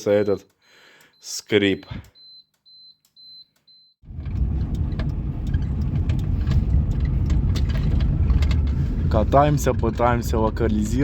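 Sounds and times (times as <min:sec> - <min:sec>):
faint high beep: 0:01.2 - 0:04.0
car road and engine rumble: 0:04.0 - 0:11.0.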